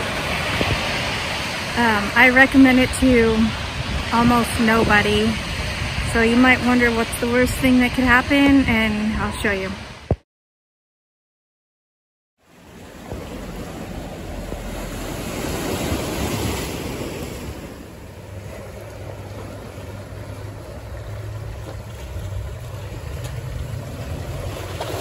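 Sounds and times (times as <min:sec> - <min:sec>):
waves washing: 0:00.0 - 0:10.2, 0:12.4 - 0:25.0
wind buffeting microphone: 0:00.0 - 0:10.2.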